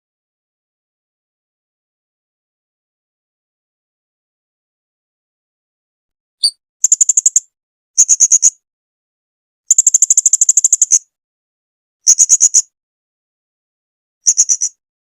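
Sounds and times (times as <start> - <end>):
parrot chirping: 6.4 - 7.4.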